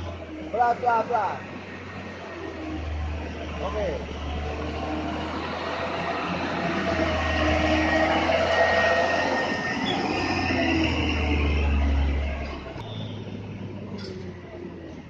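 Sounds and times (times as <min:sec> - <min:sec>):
truck engine at low speed: 0:00.0 - 0:15.0.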